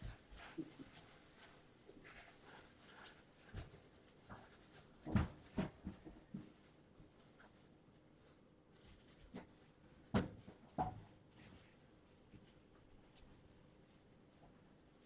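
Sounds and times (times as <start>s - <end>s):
soft knocks and bumps: 3.4s - 6.7s, 9.2s - 11.6s.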